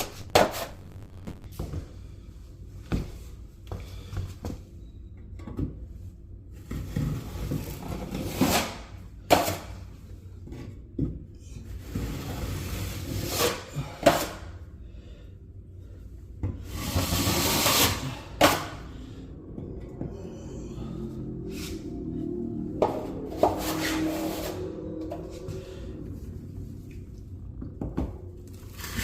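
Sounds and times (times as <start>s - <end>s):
drywall knife scraping compound: 6.8s - 9.7s, 11.8s - 14.5s, 16.6s - 18.8s, 23.3s - 24.8s, 28.6s - 29.0s.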